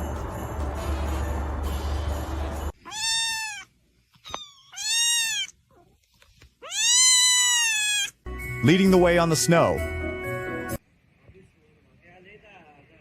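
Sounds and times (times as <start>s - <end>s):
cat meowing: 2.8s - 5.6s, 6.6s - 8.2s.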